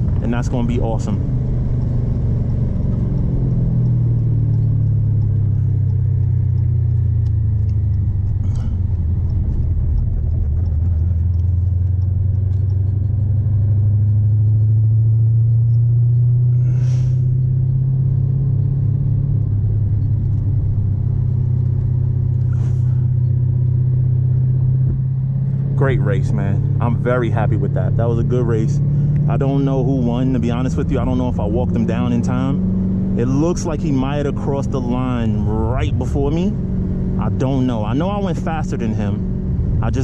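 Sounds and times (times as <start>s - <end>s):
car engine droning: 0.0s - 40.0s
faint clicks: 2.8s - 16.2s.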